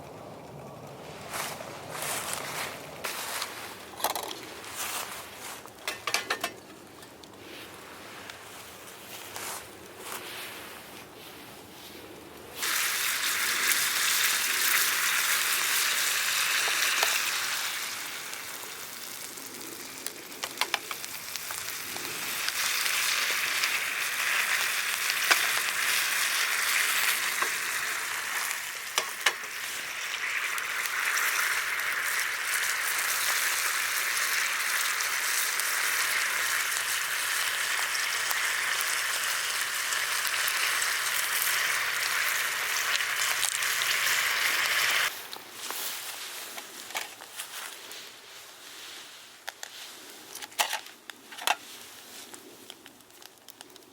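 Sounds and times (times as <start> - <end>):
food sizzling in a pan: 12.6 - 46.1.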